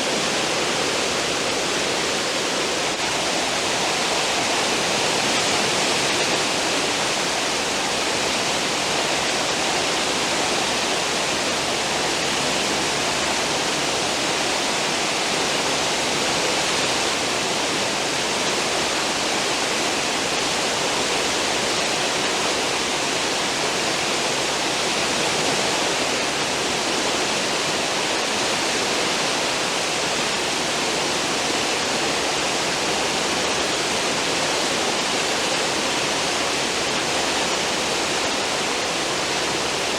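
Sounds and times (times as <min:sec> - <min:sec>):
ship wake rushing water: 0:00.0 - 0:39.9.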